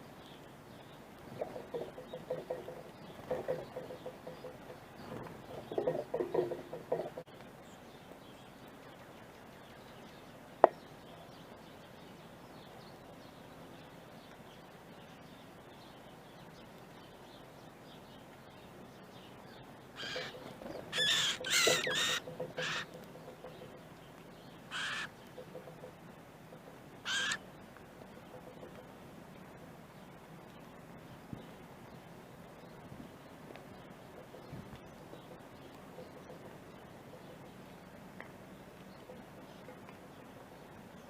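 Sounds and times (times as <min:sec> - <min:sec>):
harsh bird calls: 0:20.0 - 0:23.6, 0:24.7 - 0:25.5, 0:27.0 - 0:27.4.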